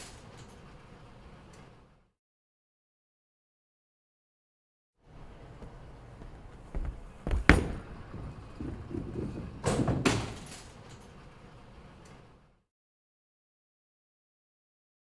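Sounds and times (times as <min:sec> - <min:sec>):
low rustling: 0:05.3 - 0:10.5
knocks and thuds: 0:06.4 - 0:10.4.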